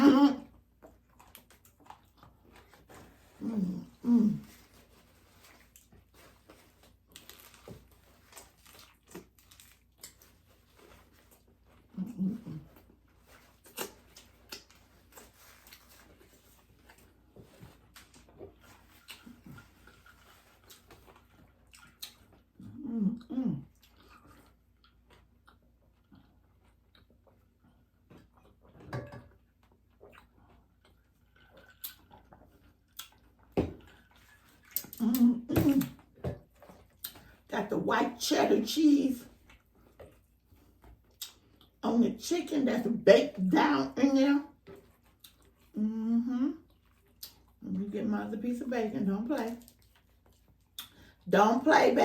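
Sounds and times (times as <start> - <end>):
chewing and mouth sounds: 0.6 - 37.5, 39.3 - 41.8, 44.5 - 47.7, 49.4 - 51.2
crunching of crispy food being eaten: 0.9 - 28.6, 29.9 - 35.2, 49.5 - 51.2.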